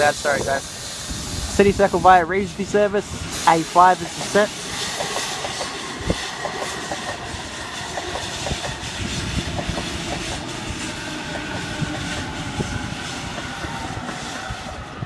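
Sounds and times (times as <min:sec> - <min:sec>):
train rushing noise: 0:00.0 - 0:15.0
train wheels clicking over rail joints: 0:03.3 - 0:14.4.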